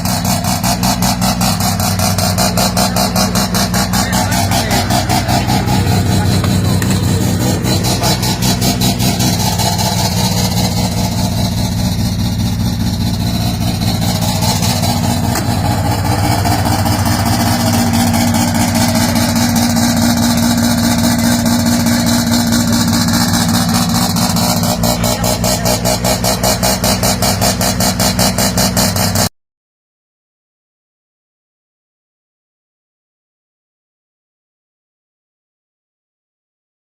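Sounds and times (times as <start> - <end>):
rotary engine idling: 0.0 - 29.2.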